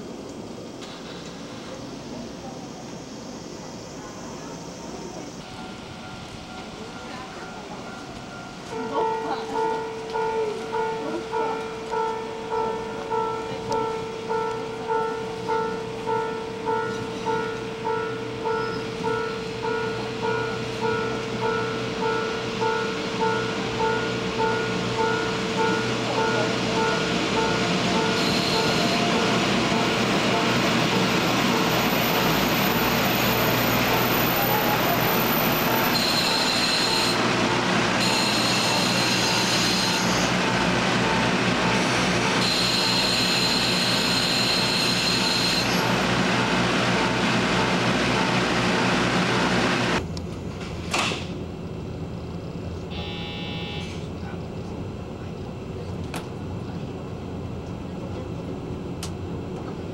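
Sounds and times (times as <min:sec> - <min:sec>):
train engine drone: 0:00.0 - 0:59.9
wheels rumbling on rail: 0:00.0 - 0:59.9
level-crossing warning bell: 0:04.0 - 0:50.0, 0:52.9 - 0:54.1.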